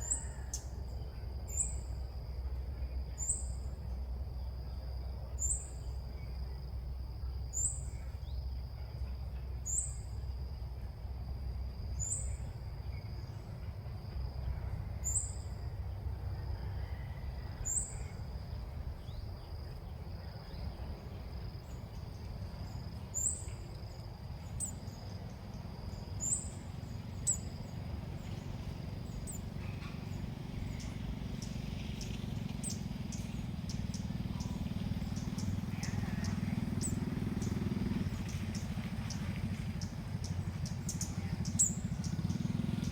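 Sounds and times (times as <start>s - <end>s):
bird chirping calls: 19.0s - 42.9s.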